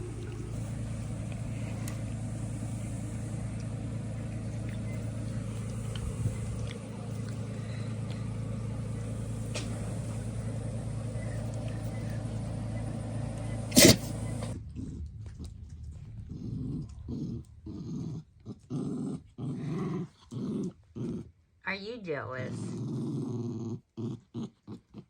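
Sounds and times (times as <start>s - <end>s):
steady low drone: 0.0s - 18.4s
dogs growling: 0.0s - 21.6s, 22.3s - 25.0s.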